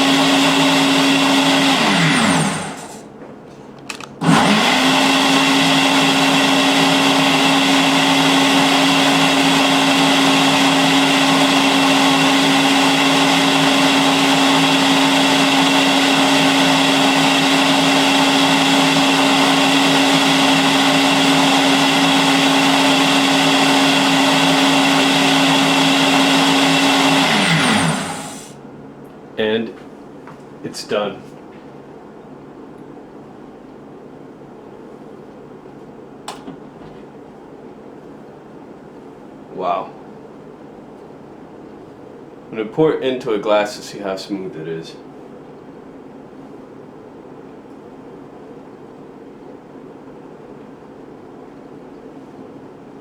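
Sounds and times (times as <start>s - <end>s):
blender crushing ice: 0.0s - 3.0s, 4.2s - 28.5s.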